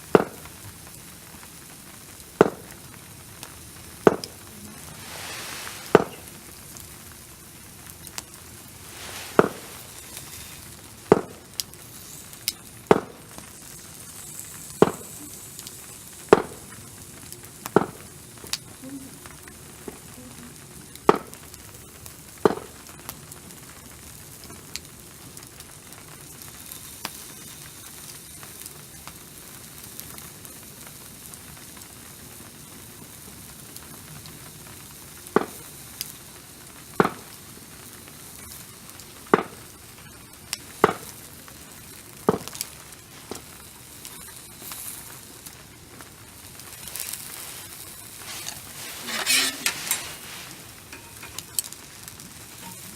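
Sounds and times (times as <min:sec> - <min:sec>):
food sizzling on a grill: 0:00.0 - 0:52.9
sharp fat pops: 0:00.1 - 0:00.5, 0:02.4 - 0:02.7, 0:04.0 - 0:04.4, 0:11.1 - 0:11.4, 0:12.9 - 0:13.2.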